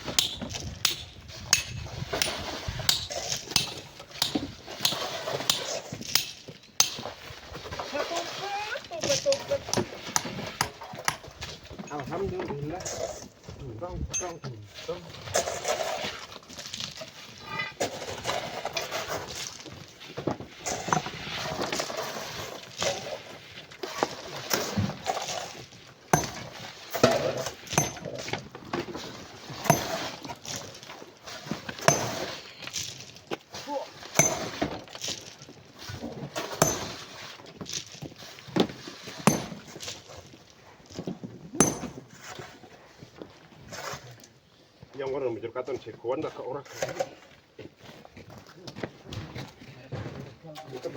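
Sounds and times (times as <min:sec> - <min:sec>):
hand tools knocking on stone: 0:03.6 - 0:07.0, 0:26.2 - 0:28.2, 0:29.7 - 0:30.1, 0:31.8 - 0:32.4, 0:34.2 - 0:34.6, 0:36.6 - 0:37.0, 0:39.2 - 0:39.8, 0:41.6 - 0:42.1
rubble clattering: 0:24.1 - 0:42.5.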